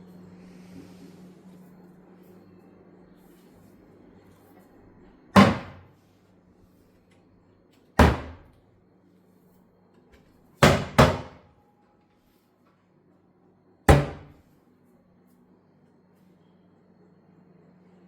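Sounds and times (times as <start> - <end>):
cabinet doors thumping shut: 5.4 - 5.8, 8.0 - 8.5, 10.6 - 11.4, 13.9 - 14.3.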